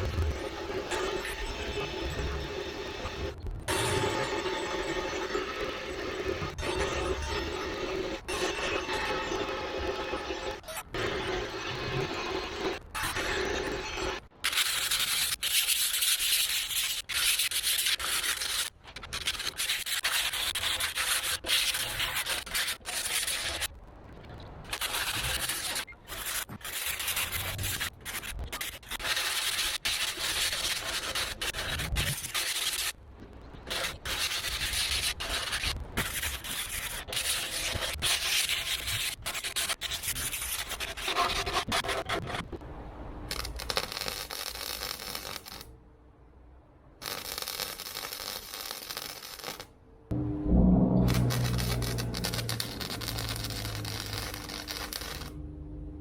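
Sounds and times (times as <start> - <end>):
scratchy rubbing on metal: 14.5 - 23.7, 24.7 - 32.9, 33.7 - 42.4, 51.3 - 55.4.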